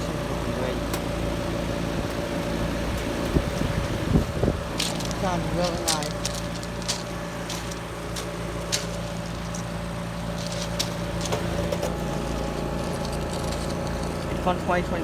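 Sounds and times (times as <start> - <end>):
heat pump humming: 0.0 - 15.0.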